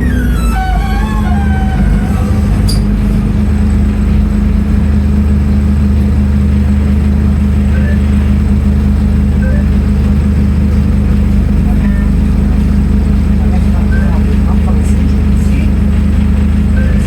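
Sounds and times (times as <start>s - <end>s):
bus diesel engine running: 0.0s - 17.0s.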